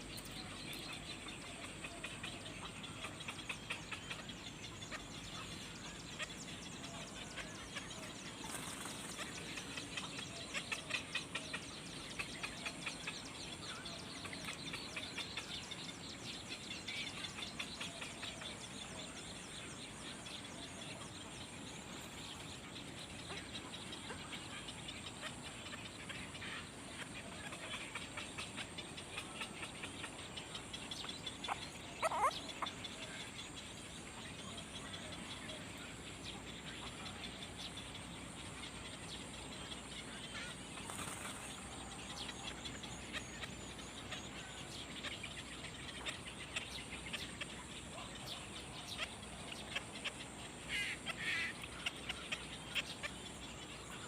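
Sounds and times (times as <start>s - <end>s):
baby birds chirping: 26.6s - 39.3s.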